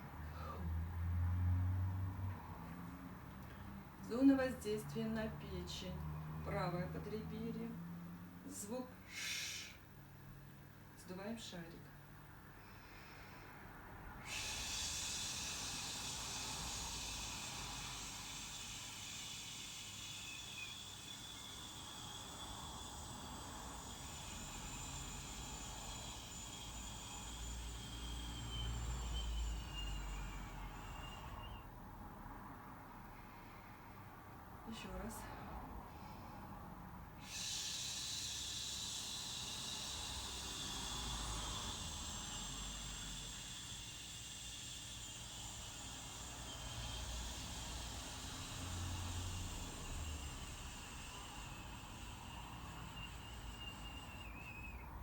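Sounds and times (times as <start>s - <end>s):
long hiss exhaled through lips: 0.0s - 1.6s, 9.0s - 9.9s, 12.6s - 31.7s, 35.2s - 55.0s.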